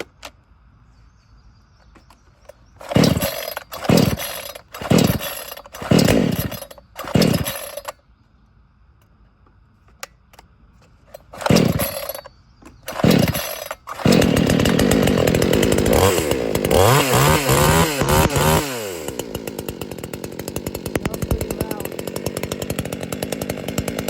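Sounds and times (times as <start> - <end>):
chainsaw starting and revving: 2.8 - 8.0, 11.1 - 24.0.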